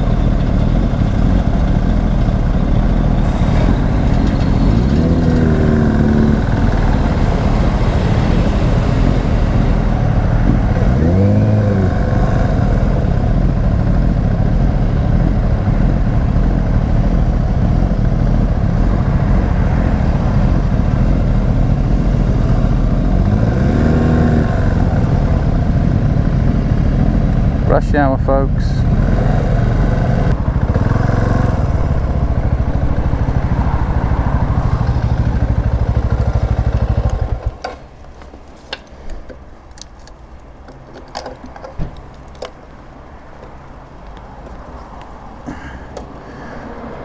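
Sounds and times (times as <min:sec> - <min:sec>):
motorcycle engine note rising: 0:00.0 - 0:27.8, 0:28.5 - 0:37.6
wind and road noise: 0:00.0 - 0:47.0.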